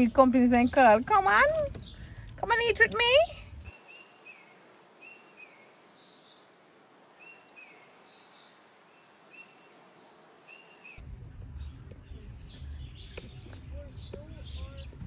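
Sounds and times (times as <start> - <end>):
low rumble: 0.0 - 3.8, 11.0 - 15.0
high bird chirps: 3.7 - 11.0.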